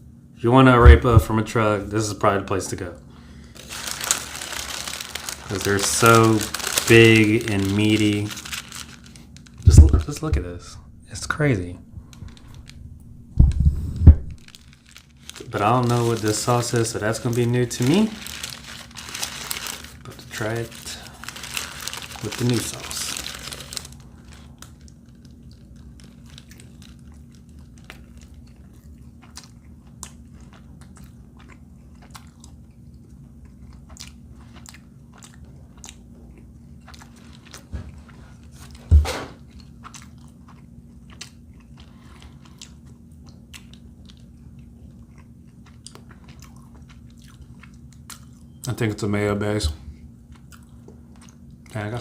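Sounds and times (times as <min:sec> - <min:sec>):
low steady hum: 0:00.0 - 0:52.0
loud thump: 0:00.8 - 0:01.4
person chewing food: 0:23.1 - 0:38.8, 0:39.4 - 0:48.6, 0:50.2 - 0:51.7.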